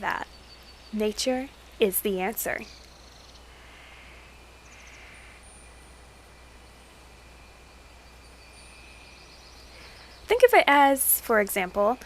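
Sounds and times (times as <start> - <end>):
high insect tones: 0.0 - 12.0
steady outdoor hiss: 0.0 - 12.0.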